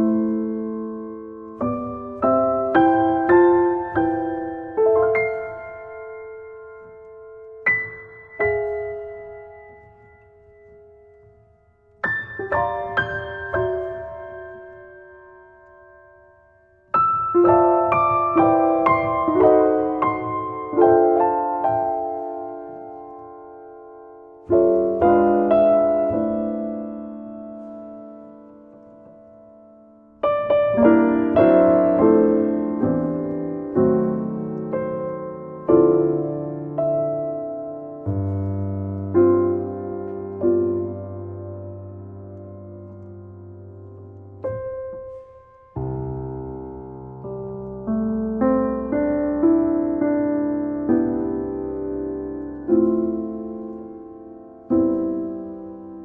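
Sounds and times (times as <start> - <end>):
solo piano chords: 0.0 - 56.0.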